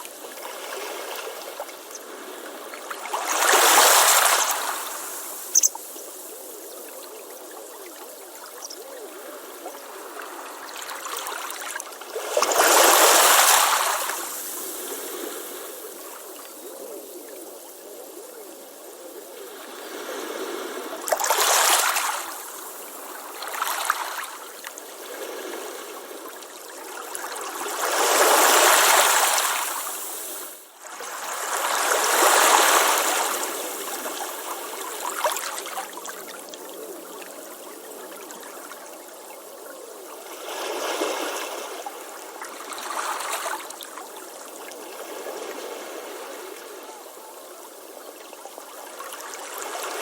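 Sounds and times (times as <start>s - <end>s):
hiss of moving water: 0.0s - 50.0s.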